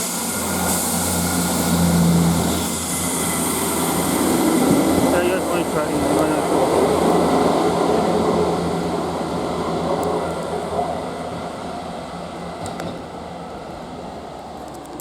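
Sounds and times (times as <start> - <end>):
diesel train engines rumbling: 0.0 - 15.0.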